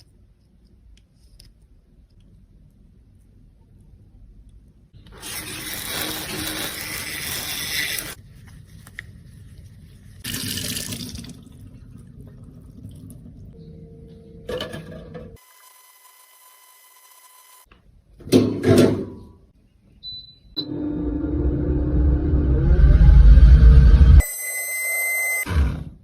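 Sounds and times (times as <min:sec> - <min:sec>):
water running: 0:10.2 - 0:13.6.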